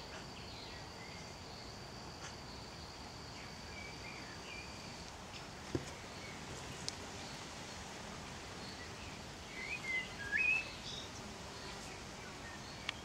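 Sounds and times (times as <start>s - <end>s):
outdoor background hiss: 0.0s - 13.0s
bird chirping: 8.6s - 13.0s.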